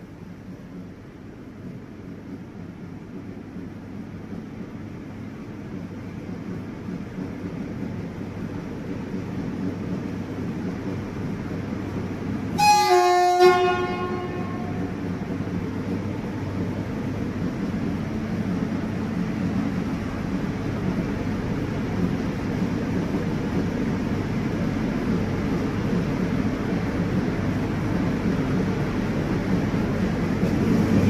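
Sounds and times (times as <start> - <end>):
train rumble: 0.0 - 31.0
locomotive horn blast: 12.6 - 15.0.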